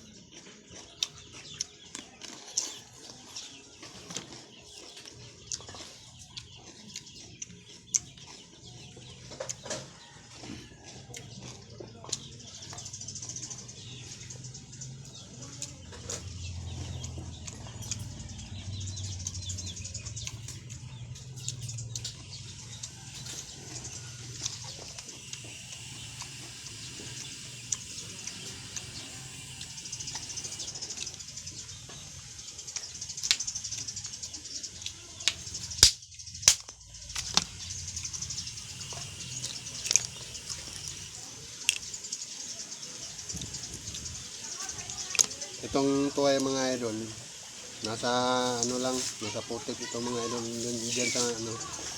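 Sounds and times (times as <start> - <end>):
person chewing food: 0.0 - 12.9, 15.0 - 31.2, 34.8 - 42.1
birds: 0.0 - 51.9.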